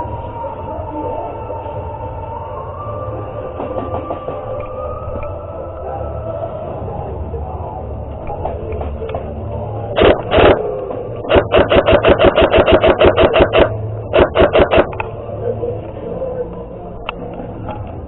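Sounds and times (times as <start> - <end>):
airsoft gun firing: 10.0 - 15.0.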